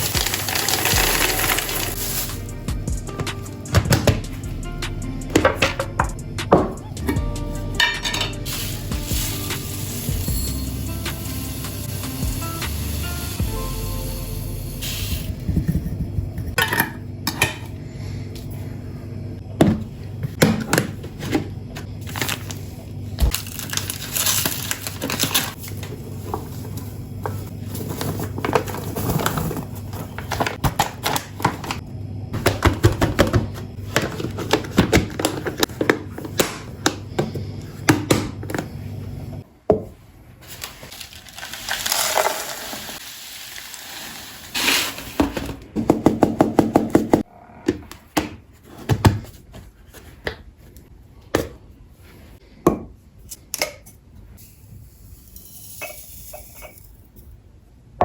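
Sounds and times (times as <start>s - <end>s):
containers clicking and clinking: 0.0s - 2.3s
steady low hum: 13.6s - 23.3s.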